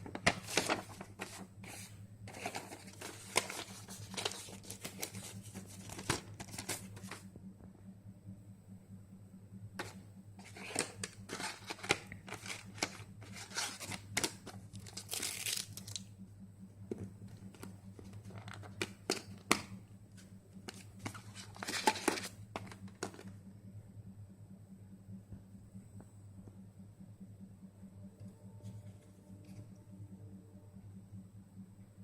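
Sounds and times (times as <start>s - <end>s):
packaging rustling and crinkling: 0.0s - 7.2s, 9.8s - 16.0s, 20.7s - 23.2s
steady low hum: 0.0s - 32.0s.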